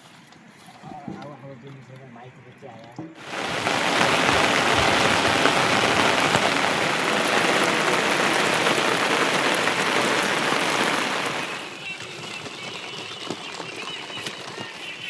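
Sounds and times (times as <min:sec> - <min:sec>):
heavy rain falling: 0:03.2 - 0:15.0.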